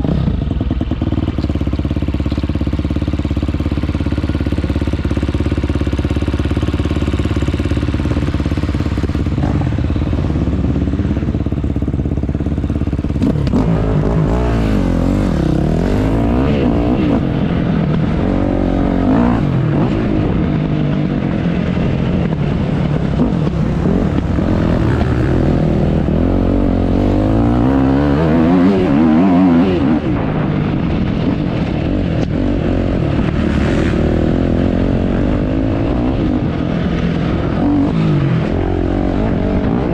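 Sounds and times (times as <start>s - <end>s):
motocross bike engine revving: 4.0s - 20.4s, 23.0s - 30.5s, 32.0s - 36.6s.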